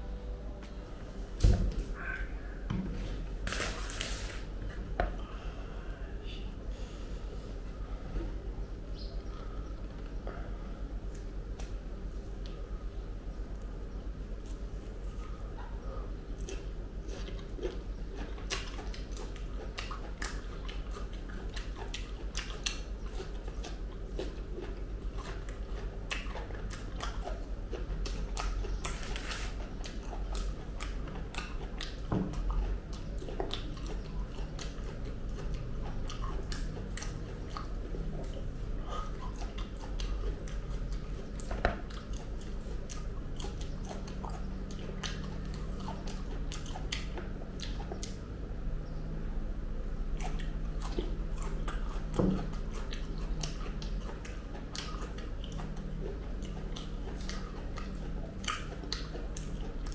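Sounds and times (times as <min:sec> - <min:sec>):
wet chewing and mouth smacks: 0:13.5 - 0:48.4, 0:49.9 - 0:59.9
fingers tearing sticky fruit: 0:16.3 - 0:48.3, 0:49.9 - 0:59.9.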